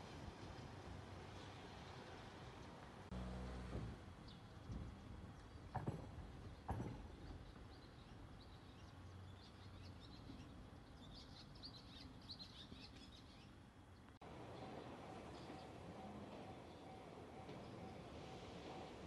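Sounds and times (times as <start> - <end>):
small birds chirping: 6.5 - 18.1.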